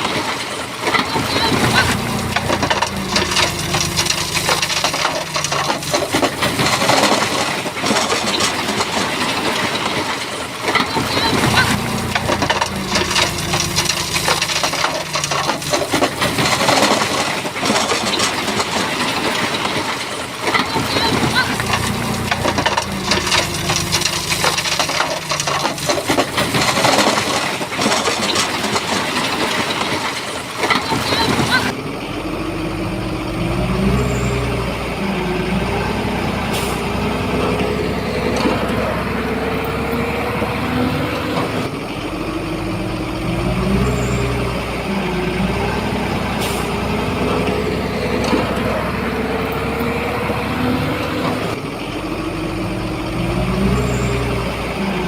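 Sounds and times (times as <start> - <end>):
stones clattering and crunching: 0.0 - 31.8
diesel engine humming: 0.0 - 55.0.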